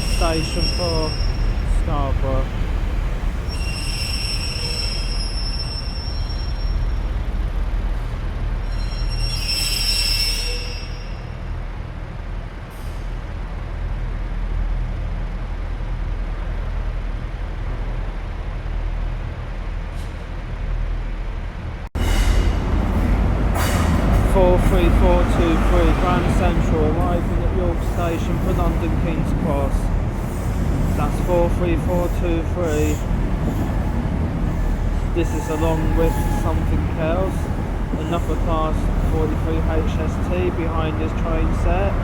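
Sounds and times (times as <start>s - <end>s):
train wheel squeal: 0.0s - 2.0s, 3.4s - 7.2s, 8.6s - 11.5s, 30.2s - 40.4s
train diesel engine rumble: 0.0s - 42.0s.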